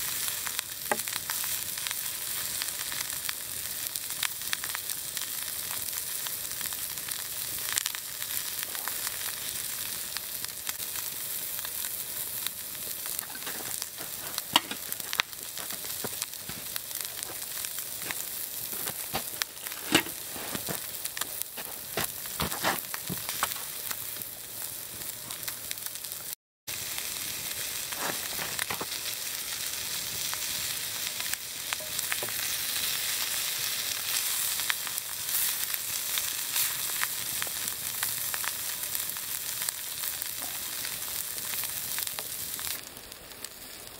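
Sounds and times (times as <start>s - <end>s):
meat sizzling in a skillet: 0.0s - 43.9s
sharp pops and crackles: 0.3s - 26.4s, 27.8s - 29.2s.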